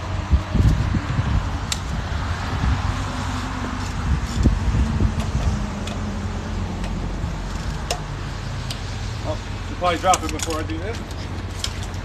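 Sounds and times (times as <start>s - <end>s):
low engine hum: 0.0s - 12.0s
lug wrench metallic clicks: 9.9s - 12.0s.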